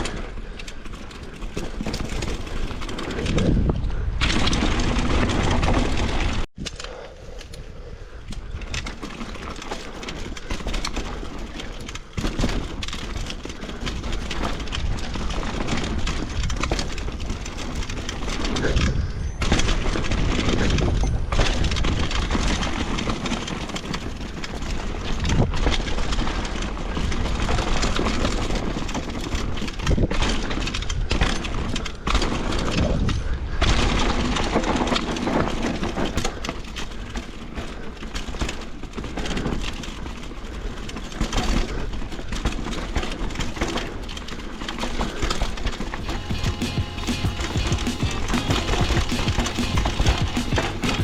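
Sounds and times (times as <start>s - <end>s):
bike clattering over bumps: 0.0s - 6.8s, 7.9s - 46.2s
wind rushing over microphone: 2.7s - 6.4s
tyres on dirt: 33.7s - 51.0s.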